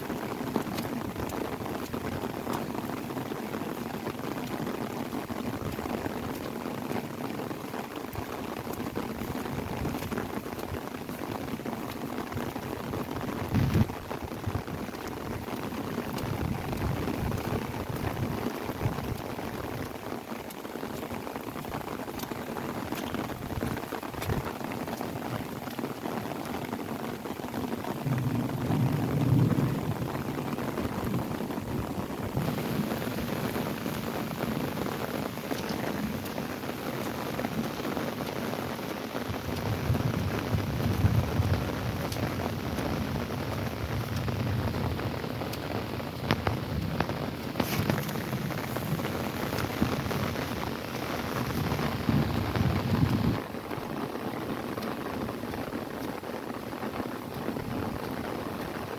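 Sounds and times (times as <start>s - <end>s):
rain falling on an umbrella: 0.0s - 58.9s
low rumble: 39.8s - 53.5s.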